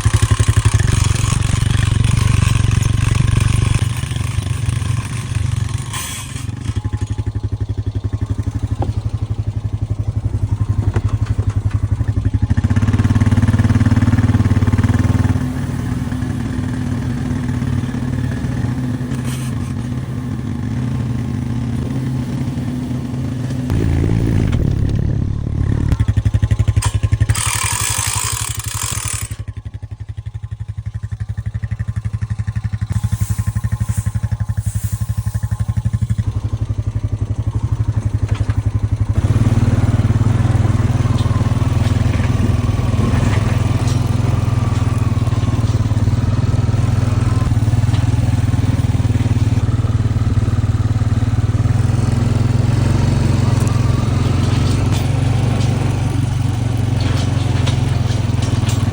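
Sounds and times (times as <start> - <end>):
small petrol engine running: 0.0 - 58.9
loud rushing hiss: 32.9 - 36.0.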